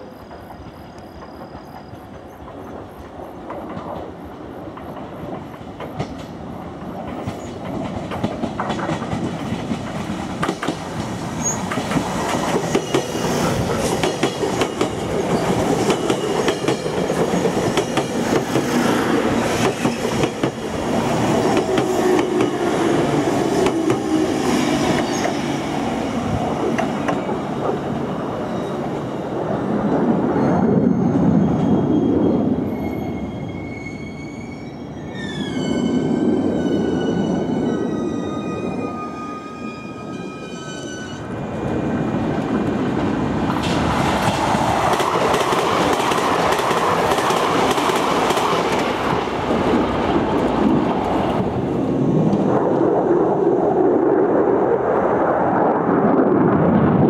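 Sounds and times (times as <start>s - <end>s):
train wheels clattering over joints: 4.7s - 18.8s.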